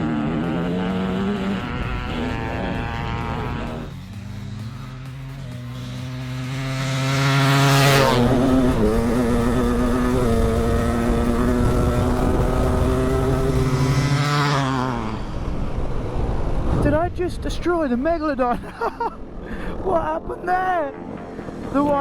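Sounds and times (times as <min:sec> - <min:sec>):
two-stroke dirt bikes racing: 0:00.0 - 0:22.0.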